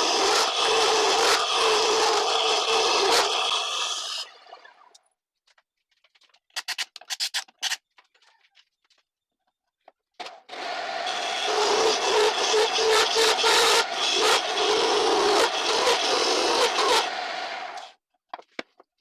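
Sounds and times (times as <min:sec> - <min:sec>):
lathe motor hum: 0:00.0 - 0:03.9, 0:10.5 - 0:17.9
lathe tool scraping wood: 0:00.0 - 0:04.3, 0:10.5 - 0:17.9.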